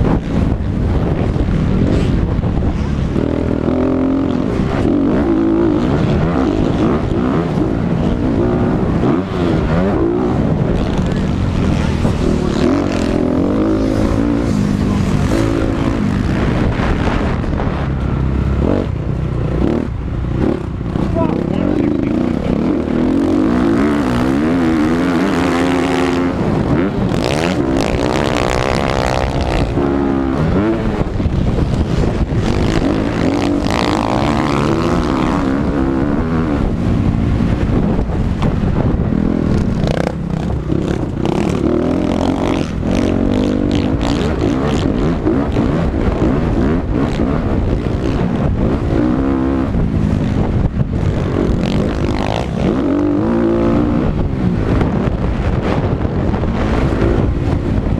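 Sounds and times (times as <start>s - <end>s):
dirt bike engines revving: 0.0s - 57.9s.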